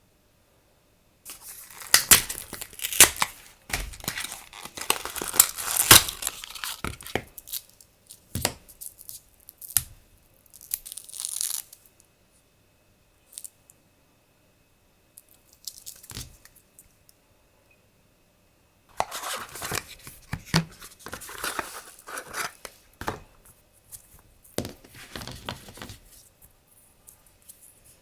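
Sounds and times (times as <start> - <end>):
packaging crinkling and tearing: 1.3 - 7.6, 18.9 - 23.2.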